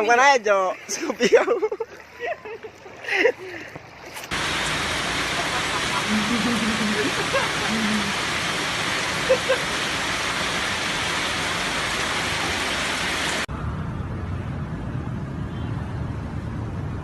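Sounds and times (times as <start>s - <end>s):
rushing water hiss: 4.3s - 13.5s
low rumbling noise: 4.3s - 17.0s.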